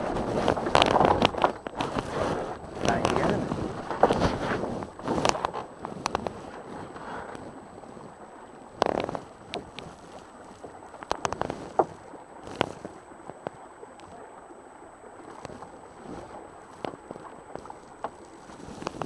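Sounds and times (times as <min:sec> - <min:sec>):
knocks and splashes: 0:00.0 - 0:14.2
wind on microphone: 0:00.0 - 0:14.3, 0:15.2 - 0:19.0
water lapping against boat hull: 0:00.0 - 0:19.0.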